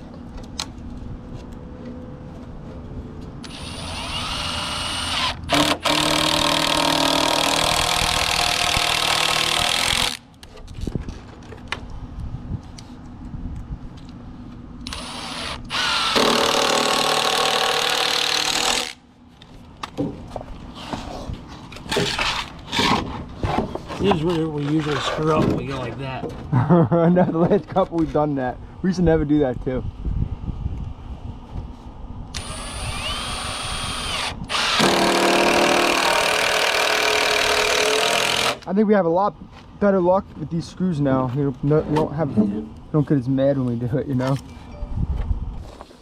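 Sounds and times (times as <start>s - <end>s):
cordless drill driving screws: 3.4s - 10.2s, 14.9s - 19.0s, 32.4s - 38.7s.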